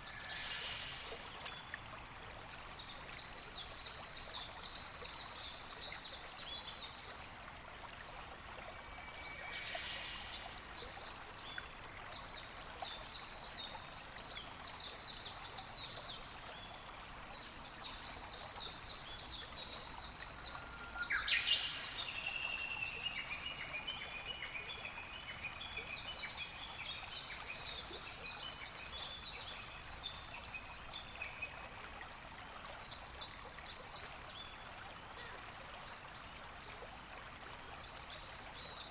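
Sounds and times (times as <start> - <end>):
small birds singing: 9.0 - 38.9.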